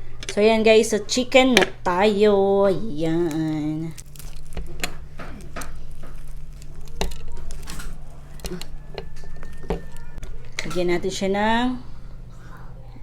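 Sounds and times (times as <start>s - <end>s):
steady low hum: 0.0s - 13.0s
food containers handled: 2.7s - 10.9s.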